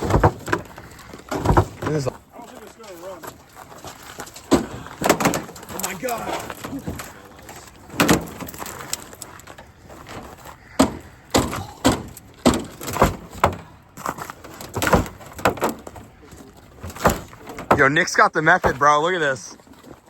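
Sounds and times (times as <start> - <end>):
heavy blows on metal truck body: 10.7 - 13.7.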